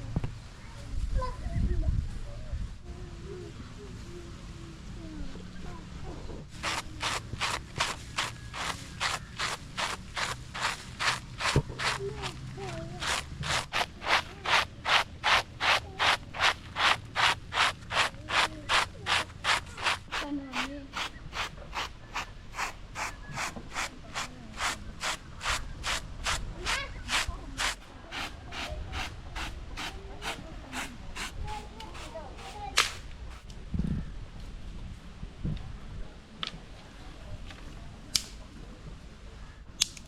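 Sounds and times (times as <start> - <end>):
stone rubbing on stone: 6.6 - 33.5.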